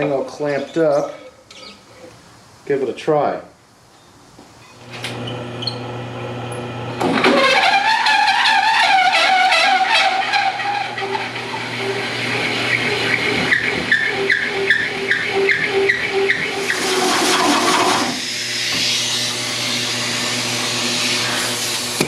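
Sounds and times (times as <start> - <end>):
hole saw squealing chirp: 0.4 - 2.1, 4.7 - 5.9, 7.2 - 21.6
motor hum: 10.1 - 22.0
hole saw cutting hiss: 16.5 - 22.0.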